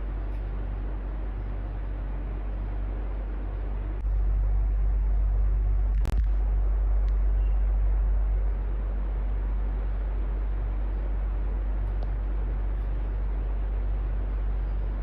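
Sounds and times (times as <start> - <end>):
electric fan running: 0.0 - 15.0
fan click: 11.8 - 13.0.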